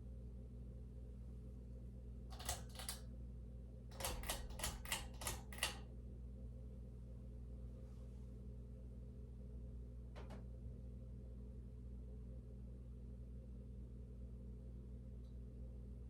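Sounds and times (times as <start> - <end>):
ceiling fan motor humming: 2.3 - 3.0, 3.9 - 6.0
sharp clicks: 2.3 - 3.0, 3.9 - 5.8.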